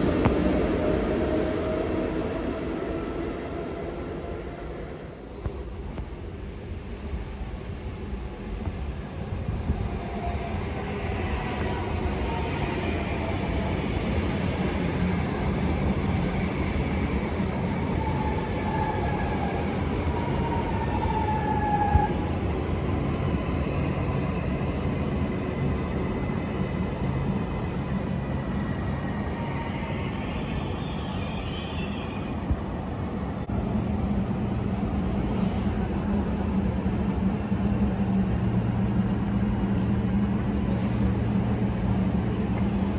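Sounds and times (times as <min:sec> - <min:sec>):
train rumbling on track: 0:00.0 - 0:42.9.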